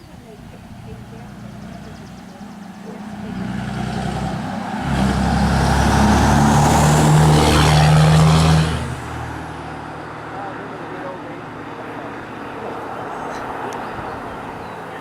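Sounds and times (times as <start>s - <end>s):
truck driving by: 0.0s - 15.0s.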